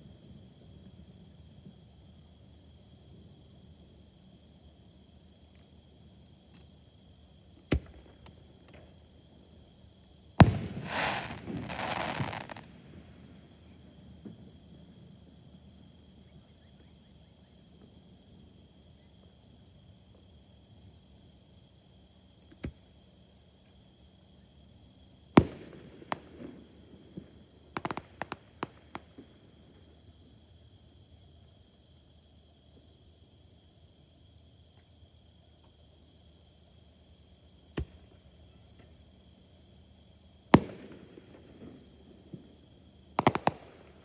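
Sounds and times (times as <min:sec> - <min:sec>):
crickets chirping: 0:00.0 - 0:44.0
insects trilling: 0:00.0 - 0:44.0
firework crackling: 0:10.4 - 0:13.4, 0:43.2 - 0:44.0
firework booms: 0:10.4 - 0:13.6, 0:25.4 - 0:29.5, 0:40.5 - 0:42.6, 0:43.2 - 0:44.0.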